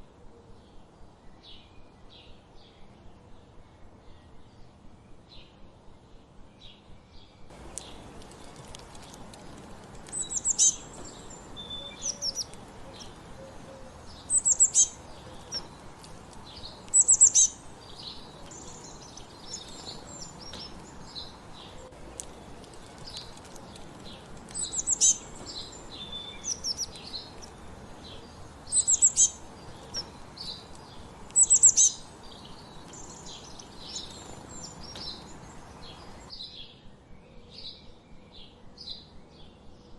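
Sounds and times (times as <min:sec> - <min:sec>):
songbirds singing and chirping: 0:00.0 - 0:39.9
soft regular pulses: 0:07.5 - 0:11.6.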